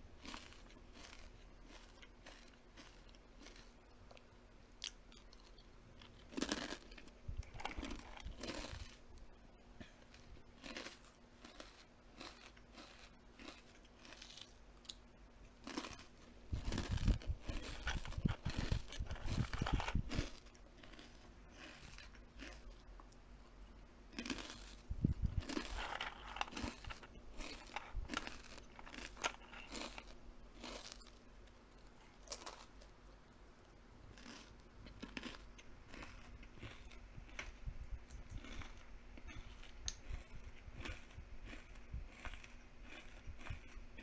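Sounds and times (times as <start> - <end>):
crunchy chewing of crisp food: 0.0 - 33.0, 34.0 - 44.0.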